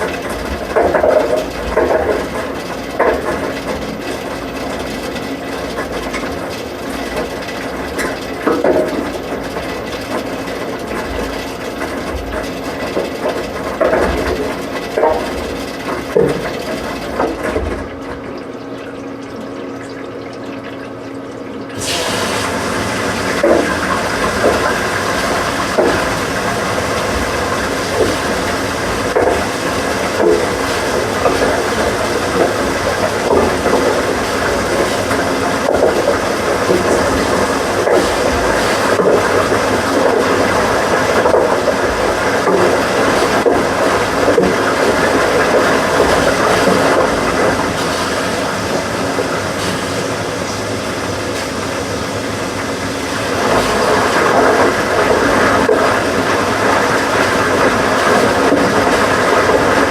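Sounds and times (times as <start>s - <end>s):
washing machine running: 0.0s - 59.9s
washing machine knocks: 12.1s - 17.9s, 22.1s - 50.6s.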